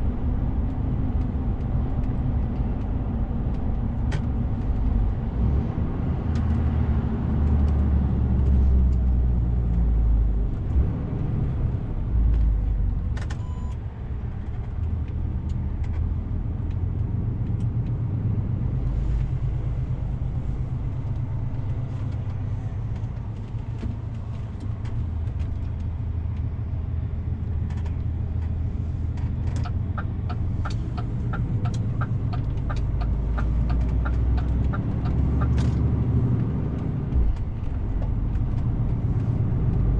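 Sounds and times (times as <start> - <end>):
truck diesel engine drone: 0.0 - 39.9
short beep: 13.4 - 13.8
turn signal ticking: 14.4 - 26.6, 27.6 - 39.9.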